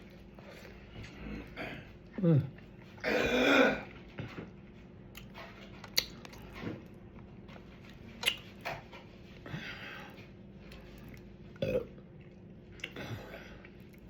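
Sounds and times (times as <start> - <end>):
person chewing food: 3.7 - 14.0.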